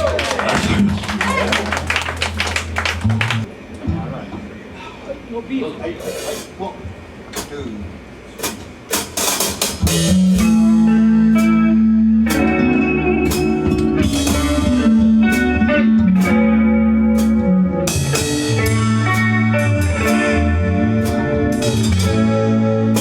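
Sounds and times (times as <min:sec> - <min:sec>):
cymbal and drum strokes: 0:06.0 - 0:06.6, 0:07.4 - 0:23.0
live band music: 0:08.4 - 0:23.0
guitar holding long notes: 0:10.0 - 0:23.0.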